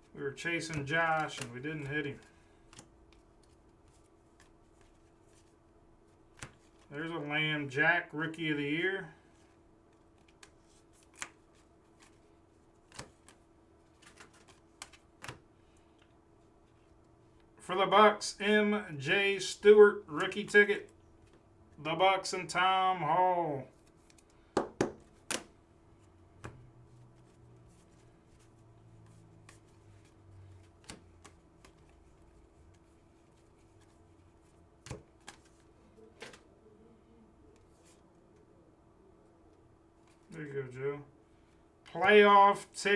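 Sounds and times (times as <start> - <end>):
faint steady hum: 0.0 - 42.9
cards clicking and tapping: 0.6 - 5.5, 6.3 - 6.9, 9.4 - 16.1, 23.8 - 25.6, 26.4 - 34.0, 34.8 - 36.4.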